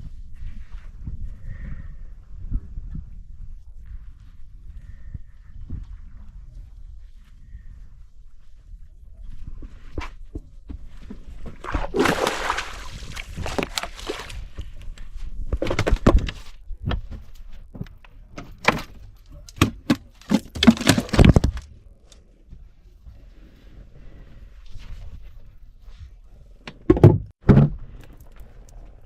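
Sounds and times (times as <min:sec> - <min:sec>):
knocks and thumps: 0:12.0 - 0:14.3.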